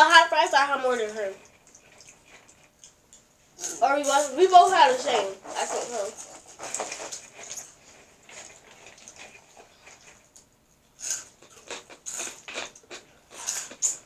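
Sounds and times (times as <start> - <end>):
crunching crispy snacks: 11.0 - 14.0.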